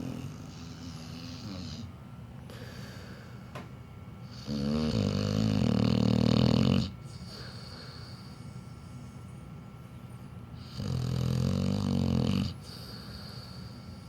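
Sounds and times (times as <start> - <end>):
dog snoring: 0.0 - 1.9, 4.2 - 9.0, 10.6 - 13.6.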